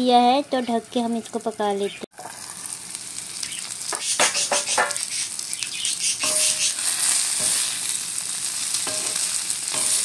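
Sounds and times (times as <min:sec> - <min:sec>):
okra sizzling on griddle: 0:00.0 - 0:10.0
spatula scraping griddle: 0:03.9 - 0:05.0, 0:06.2 - 0:08.0.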